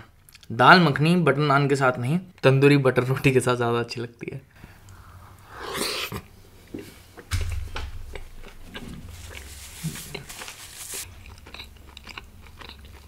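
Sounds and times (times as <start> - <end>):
chewing and mouth smacks: 11.1 - 13.0.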